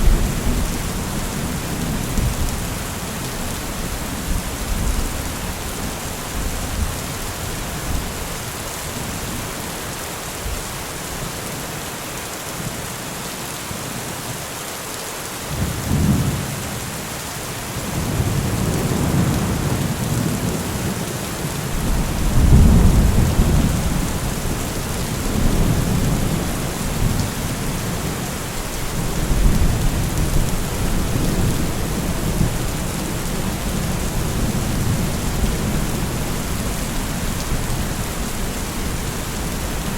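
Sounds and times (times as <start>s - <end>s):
thunder rumbling: 0.0s - 5.6s, 21.7s - 39.9s
rain falling: 0.0s - 39.9s.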